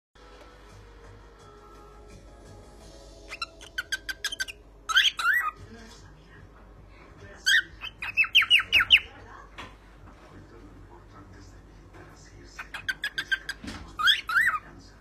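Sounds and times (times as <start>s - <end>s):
cockatiel chirping and whistling: 3.3s - 5.6s, 7.5s - 9.1s, 12.6s - 14.6s.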